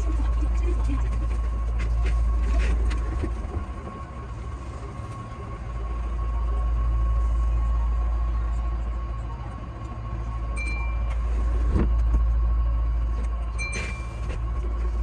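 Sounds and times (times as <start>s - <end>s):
electric train rumbling: 0.0s - 15.0s
steady high tone: 4.0s - 15.0s.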